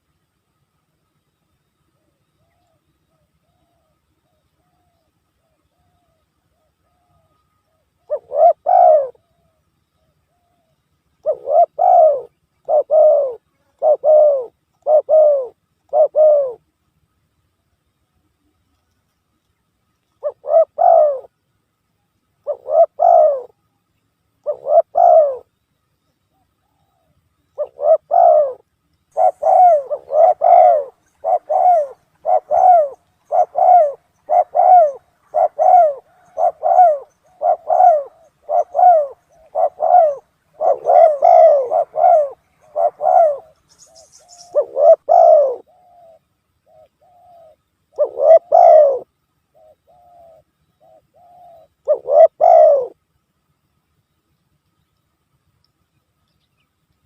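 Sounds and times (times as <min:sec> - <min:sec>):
dove cooing: 0:02.0 - 0:16.7, 0:20.2 - 0:21.3, 0:22.4 - 0:23.6, 0:24.4 - 0:25.5, 0:26.3 - 0:53.0.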